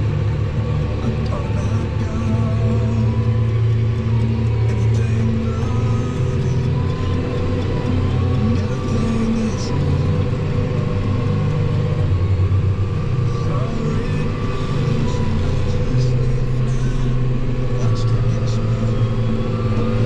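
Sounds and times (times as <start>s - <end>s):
faint whine: 0.0s - 20.0s
tractor diesel engine running: 0.0s - 20.0s.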